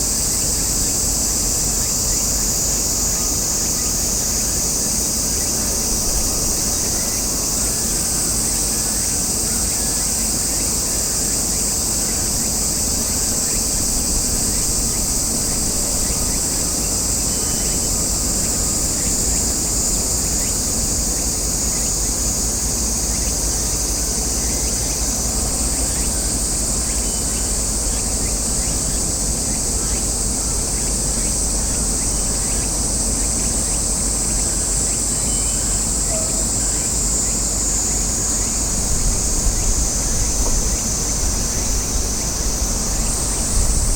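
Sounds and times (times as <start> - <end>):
cicadas droning: 0.0 - 43.9
wind rumble on microphone: 38.1 - 43.9.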